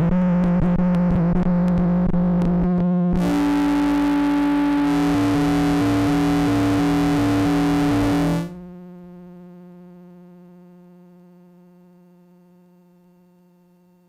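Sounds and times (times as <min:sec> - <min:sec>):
distorted synthesizer drone: 0:03.2 - 0:08.7
low wobbling tone: 0:03.2 - 0:08.8.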